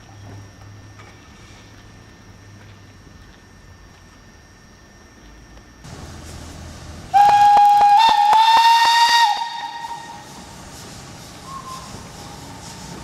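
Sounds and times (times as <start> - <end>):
steam hissing: 5.9 - 13.0
steam locomotive whistle: 7.1 - 10.4, 11.4 - 13.0.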